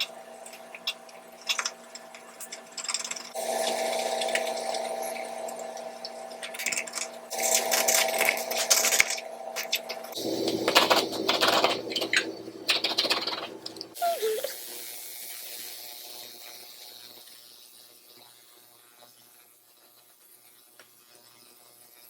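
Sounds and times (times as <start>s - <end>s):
steady mechanical hum: 0.0s - 14.8s.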